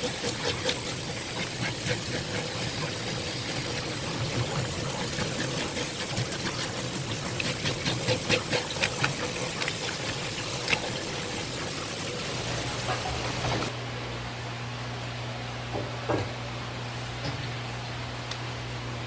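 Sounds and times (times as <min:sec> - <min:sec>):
knife scraping fish on board: 0:00.0 - 0:09.9.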